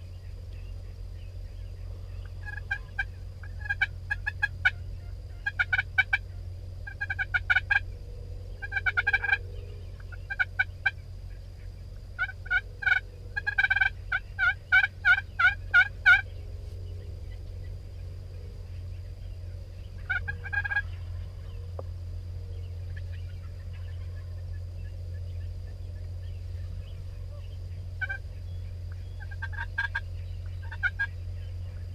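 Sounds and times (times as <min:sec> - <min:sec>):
turkeys gobbling: 0:02.1 - 0:07.9, 0:08.6 - 0:11.4, 0:12.2 - 0:17.8, 0:19.9 - 0:21.8, 0:22.8 - 0:24.6, 0:26.6 - 0:31.9.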